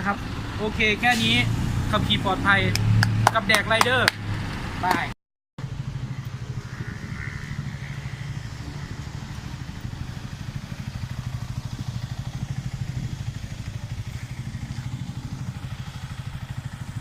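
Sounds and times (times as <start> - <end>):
motorcycle engine running: 5.6 - 17.0.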